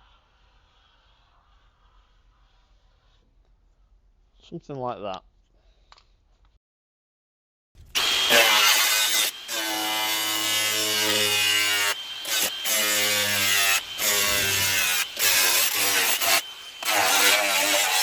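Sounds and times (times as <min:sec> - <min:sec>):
power tool cutting: 0:07.8 - 0:18.0.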